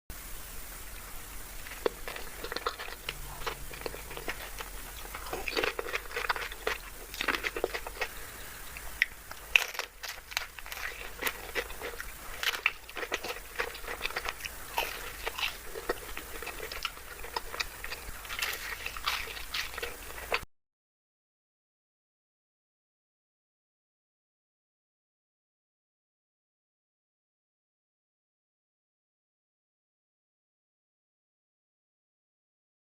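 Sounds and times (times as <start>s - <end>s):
person chewing crunchy food: 1.0s - 20.4s.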